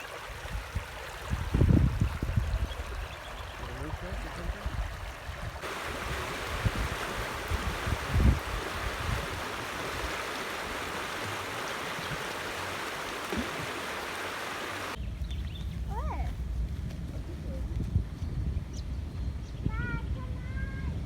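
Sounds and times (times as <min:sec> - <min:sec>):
river water rushing: 0:04.4 - 0:15.0.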